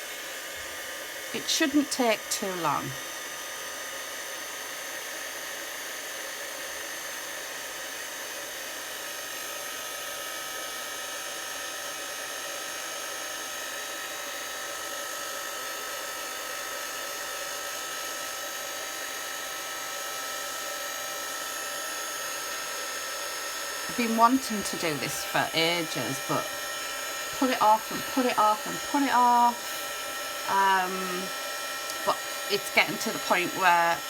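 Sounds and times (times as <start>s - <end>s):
heat gun blowing: 0.0s - 34.0s.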